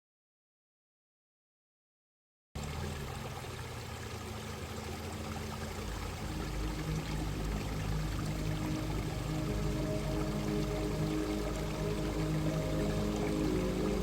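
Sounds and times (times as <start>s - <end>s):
stream water rushing: 2.6s - 14.0s
sustained low music notes: 5.1s - 14.0s.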